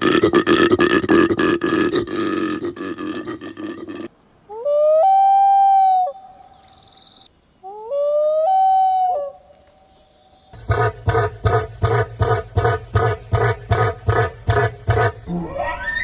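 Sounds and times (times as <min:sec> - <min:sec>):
loud animal calls: 0:00.0 - 0:06.4.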